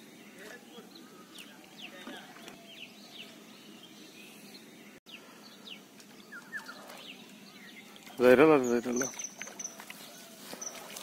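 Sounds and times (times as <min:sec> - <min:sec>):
faint outdoor background noise: 0:00.0 - 0:11.0
small birds chirping: 0:00.0 - 0:11.0.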